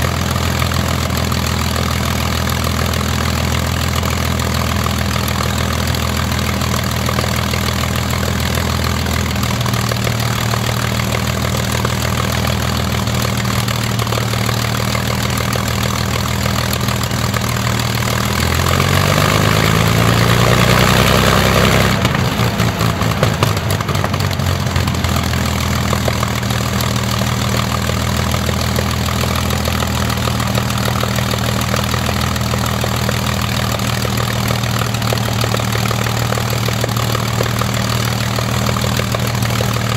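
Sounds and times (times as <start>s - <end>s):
aero engine running: 0.0s - 39.9s
engine crackles: 0.0s - 39.9s.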